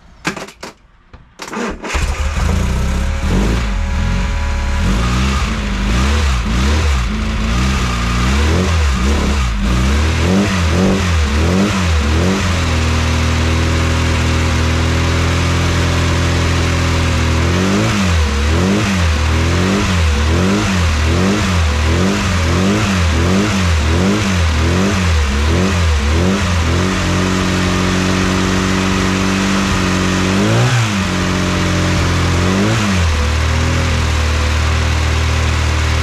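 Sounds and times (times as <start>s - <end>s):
car engine revving and idling: 1.9s - 36.0s.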